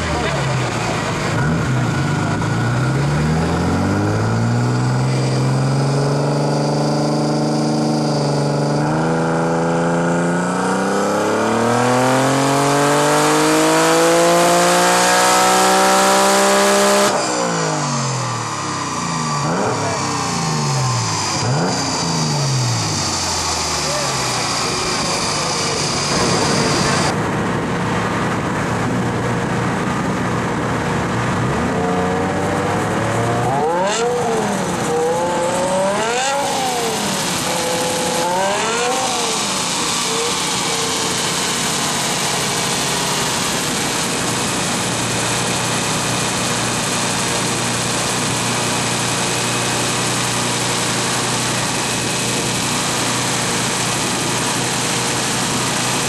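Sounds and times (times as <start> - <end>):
car engine revving on dyno: 0.0 - 56.0.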